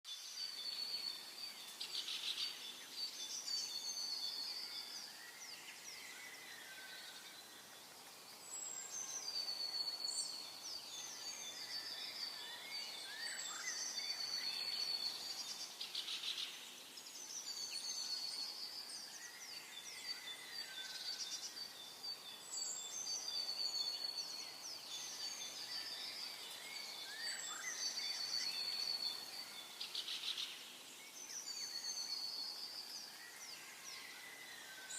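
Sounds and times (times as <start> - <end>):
songbirds singing and chirping: 0.1 - 34.9.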